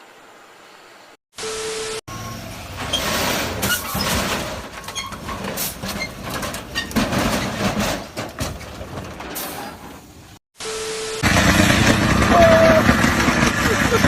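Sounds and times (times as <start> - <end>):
vehicle knocking and rattling: 11.2 - 14.0.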